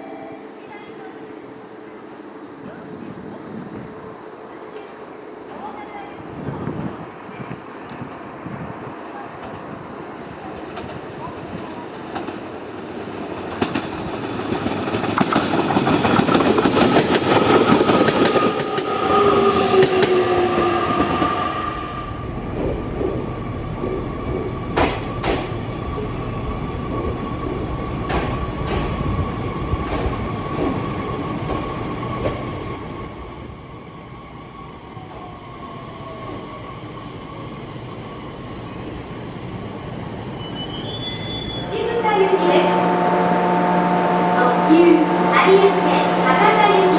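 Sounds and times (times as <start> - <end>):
electric train running: 6.3 - 40.4
sharp clicks: 15.1 - 16.3.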